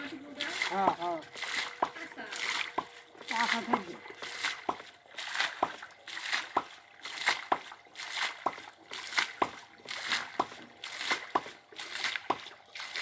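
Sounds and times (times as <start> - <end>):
water splashing and sloshing: 0.0 - 13.0
pipe knocking: 0.5 - 4.9, 6.5 - 6.8, 8.4 - 8.6.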